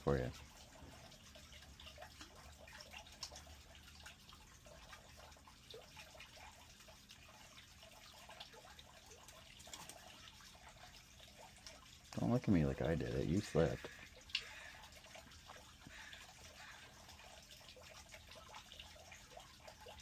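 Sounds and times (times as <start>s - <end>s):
water trickling and dripping: 0.0s - 20.0s.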